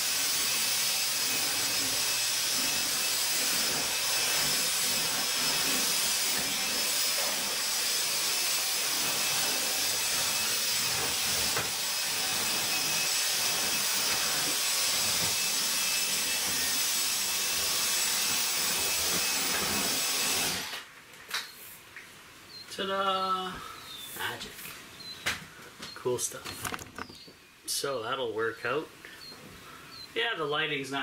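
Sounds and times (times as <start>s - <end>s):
vacuum cleaner whining: 0.0s - 20.9s, 25.0s - 27.3s.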